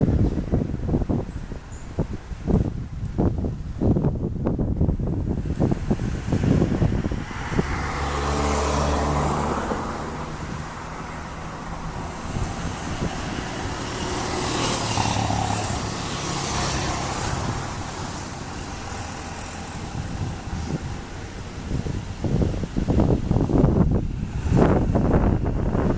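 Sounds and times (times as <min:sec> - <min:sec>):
broad rushing noise: 0:00.0 - 0:25.9
wind buffeting microphone: 0:00.0 - 0:25.9
propeller plane engine droning: 0:05.7 - 0:25.9.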